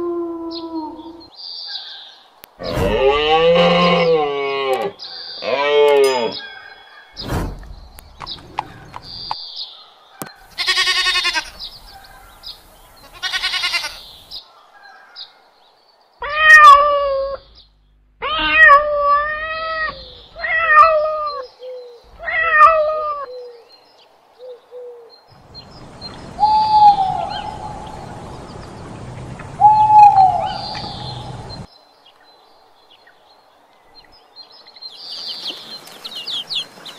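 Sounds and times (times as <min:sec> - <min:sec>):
cat meowing: 0:16.2 - 0:17.5, 0:18.2 - 0:21.4, 0:22.1 - 0:23.3.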